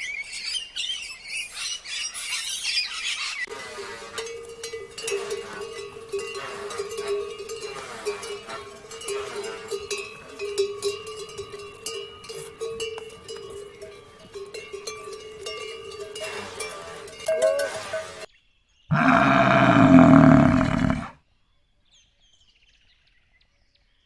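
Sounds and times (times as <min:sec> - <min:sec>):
yak bells ringing and clanking: 0:03.5 - 0:18.3.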